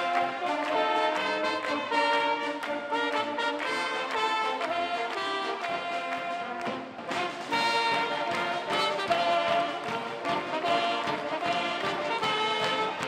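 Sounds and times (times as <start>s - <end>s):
brass band playing: 0.0s - 13.0s.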